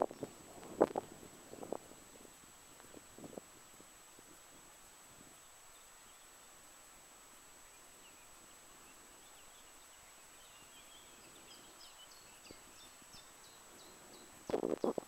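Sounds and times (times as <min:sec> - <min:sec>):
faint outdoor hiss: 0:00.0 - 0:15.0
distant birdsong: 0:05.3 - 0:15.0.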